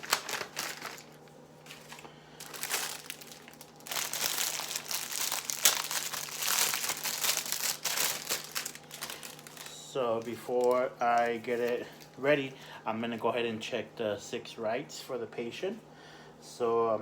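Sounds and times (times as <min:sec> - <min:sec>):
plastic bag crinkling: 0:00.0 - 0:12.3.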